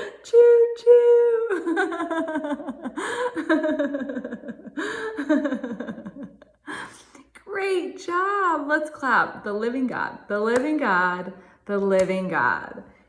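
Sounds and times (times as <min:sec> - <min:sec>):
woman speaking: 0:00.0 - 0:02.2, 0:07.3 - 0:13.0
woman laughing heartily: 0:01.5 - 0:06.9.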